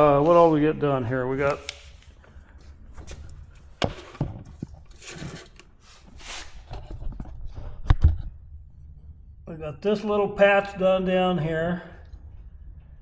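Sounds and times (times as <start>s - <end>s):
low steady hum: 6.8s - 13.0s.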